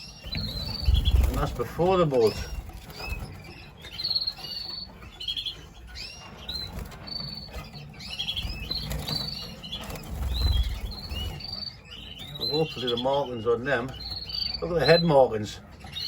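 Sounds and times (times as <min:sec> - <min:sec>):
canaries chirping: 0:00.0 - 0:16.0
wings fluttering: 0:00.2 - 0:11.7.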